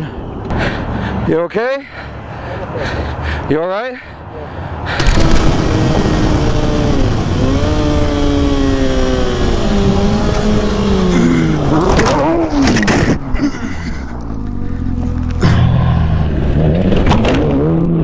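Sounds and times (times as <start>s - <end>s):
wind rush: 5.0s - 11.0s.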